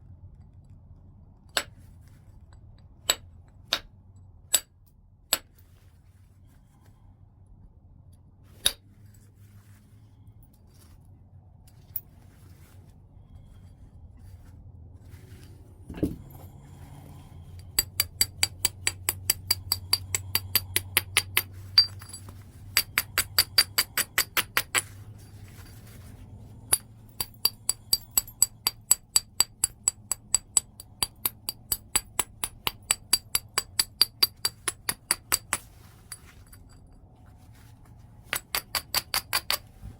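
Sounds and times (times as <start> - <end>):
dull thud: 15.9 - 16.4
stone tapping clicks: 22.8 - 24.8.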